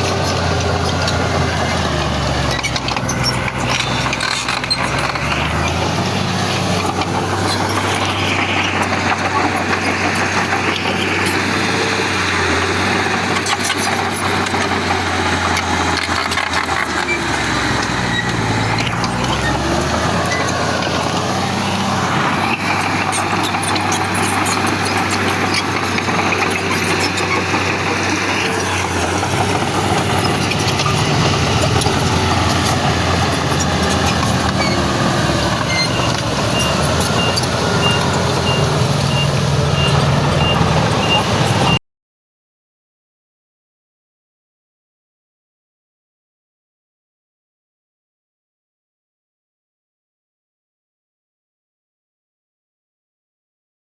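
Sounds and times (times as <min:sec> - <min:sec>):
heavy diesel machinery running: 0:00.0 - 0:41.8
reversing beeper: 0:34.3 - 0:41.8.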